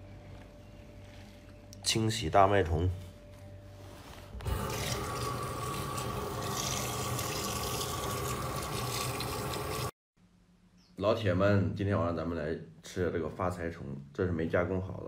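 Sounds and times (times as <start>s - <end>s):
tap water running into metal basin: 4.5s - 9.9s.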